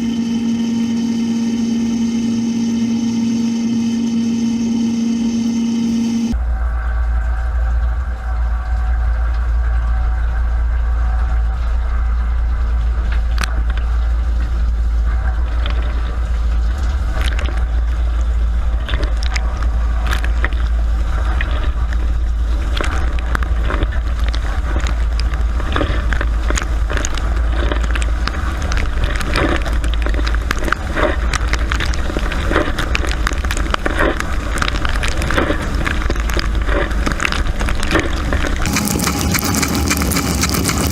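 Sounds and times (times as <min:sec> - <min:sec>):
dishwasher pump hum: 0:00.0 - 0:06.4, 0:38.4 - 0:40.9
water jets spattering: 0:20.1 - 0:40.9.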